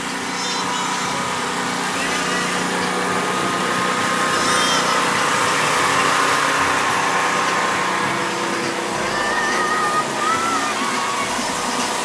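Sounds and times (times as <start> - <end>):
truck engine running: 0.0 - 12.0
short wavering high tones: 3.6 - 12.0.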